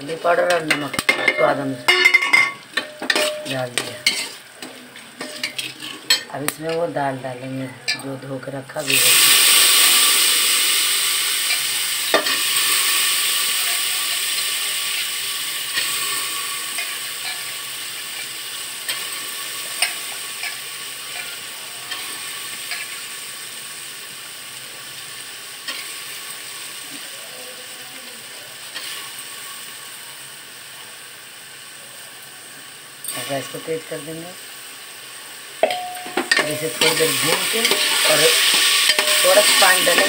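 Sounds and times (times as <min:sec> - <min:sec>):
lentils sizzling in hot oil: 0:00.0 - 0:40.0
steel spoon scraping cooker: 0:00.4 - 0:06.9, 0:35.6 - 0:40.0.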